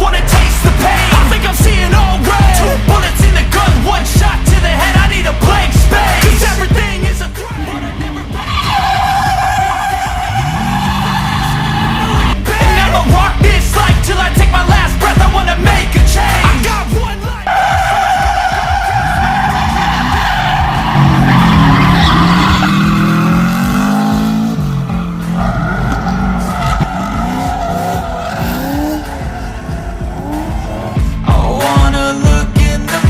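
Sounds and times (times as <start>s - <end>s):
car engine revving: 0.0s - 31.8s
tyres squealing: 7.5s - 12.4s, 17.2s - 31.0s.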